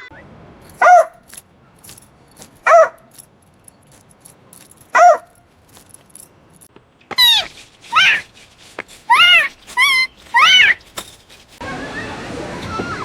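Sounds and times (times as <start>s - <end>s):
dog barking: 0.8s - 1.2s, 2.6s - 3.1s, 4.9s - 5.4s.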